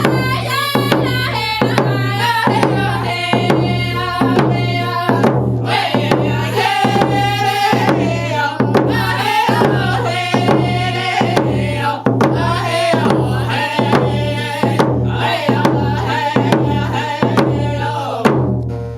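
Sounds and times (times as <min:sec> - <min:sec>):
voices singing: 0:00.0 - 0:18.4
hand drums beating: 0:00.0 - 0:18.8.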